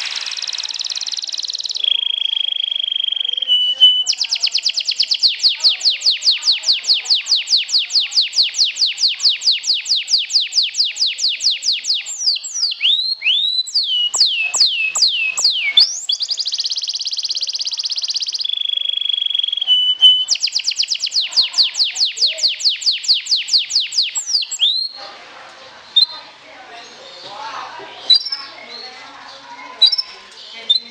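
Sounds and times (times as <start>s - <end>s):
canary singing: 0.0s - 25.1s, 25.7s - 30.9s.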